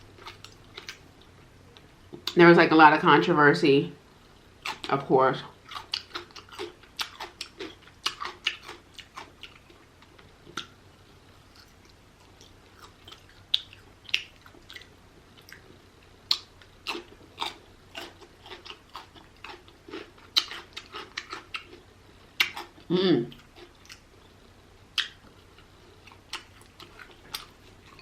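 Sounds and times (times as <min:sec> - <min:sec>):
chewing and biting: 0:05.6 - 0:10.7, 0:11.4 - 0:24.0, 0:25.0 - 0:28.0.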